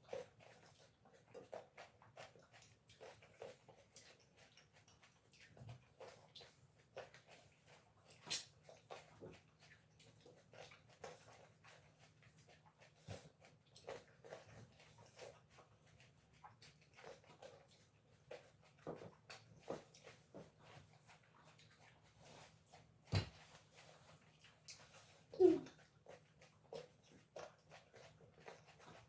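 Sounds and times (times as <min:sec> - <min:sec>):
people chewing grapes: 0:00.0 - 0:29.0.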